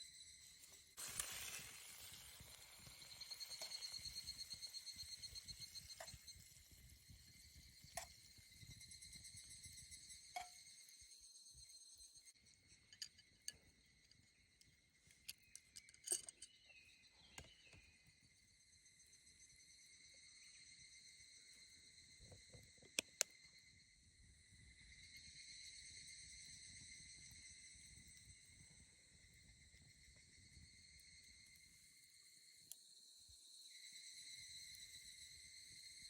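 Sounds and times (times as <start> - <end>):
insects trilling: 0.0 - 36.0
small clicks: 22.8 - 23.3.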